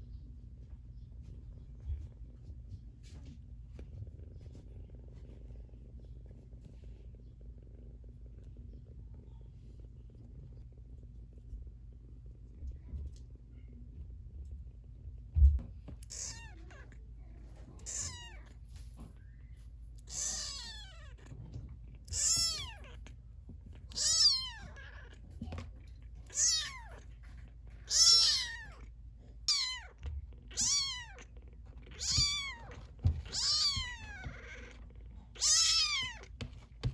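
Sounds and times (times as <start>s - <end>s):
kitten mewing: 16.0s - 16.9s, 17.8s - 18.4s, 20.1s - 21.3s, 22.1s - 23.1s, 23.9s - 25.6s, 26.3s - 27.0s, 27.9s - 28.9s, 29.5s - 31.3s, 31.9s - 36.3s.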